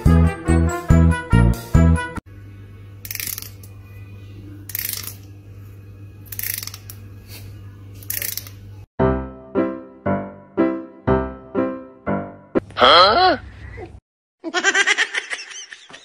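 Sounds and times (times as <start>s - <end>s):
piano-like notes music: 9.0s - 12.6s.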